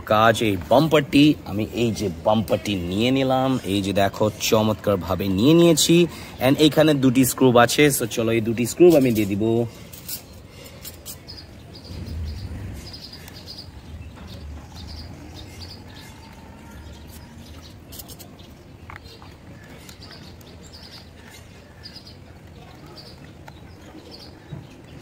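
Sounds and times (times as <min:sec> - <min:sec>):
birds chirping: 0:00.0 - 0:25.0
low handling rumble: 0:11.8 - 0:15.8.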